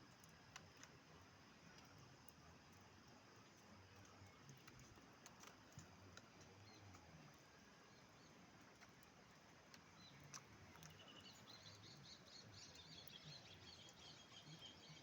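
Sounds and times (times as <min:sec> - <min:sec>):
faint clicks: 0:00.0 - 0:07.6, 0:08.5 - 0:12.0
bird chirping: 0:10.0 - 0:15.0.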